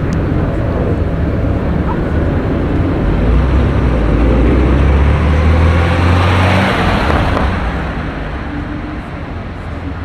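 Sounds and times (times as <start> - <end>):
car engine running: 0.0 - 10.0.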